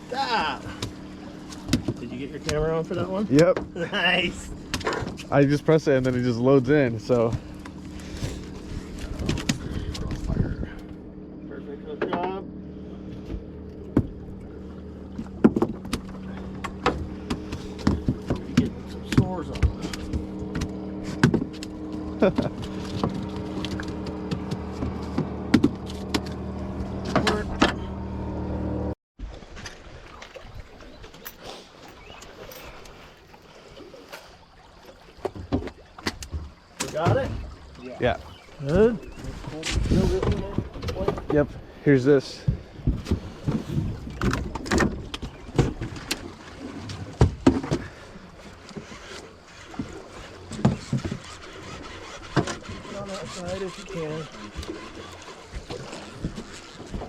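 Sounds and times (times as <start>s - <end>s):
boat motor humming: 0.0s - 57.0s
fishing gear knocking and clattering: 15.1s - 21.7s.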